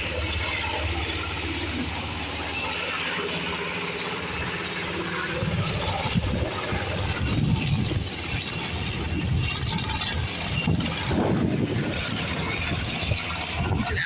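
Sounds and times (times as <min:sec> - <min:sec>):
aircraft engine drone: 0:00.0 - 0:14.0
gusty low rumble: 0:04.0 - 0:14.0.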